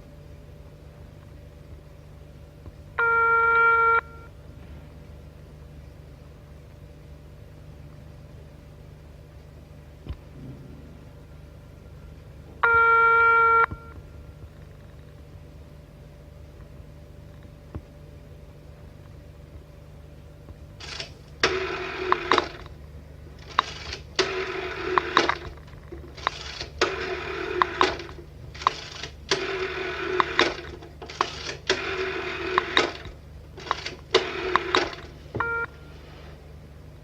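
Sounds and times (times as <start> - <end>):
telephone bell ringing: 3.0 - 4.3, 12.6 - 14.0, 35.4 - 36.0
brief tone: 3.0 - 4.4, 10.5 - 14.4, 35.4 - 36.0.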